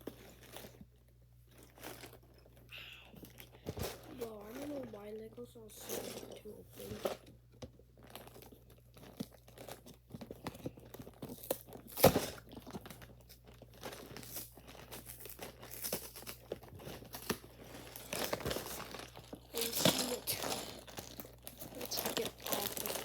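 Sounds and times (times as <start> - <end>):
cardboard box being torn open: 11.3 - 13.0.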